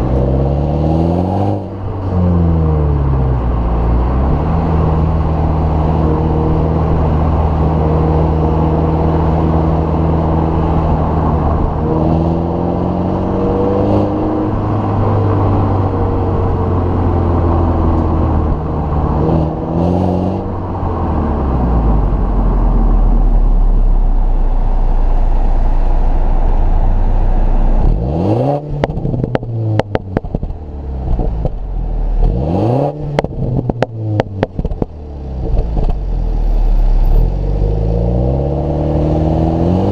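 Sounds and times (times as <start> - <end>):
car engine revving: 0.0 - 39.9
exhaust pops crackling: 28.8 - 32.4, 33.1 - 36.2.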